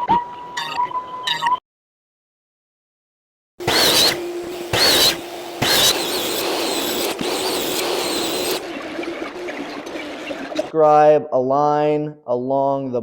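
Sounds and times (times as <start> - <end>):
woodworking power tool whining: 3.6 - 10.7.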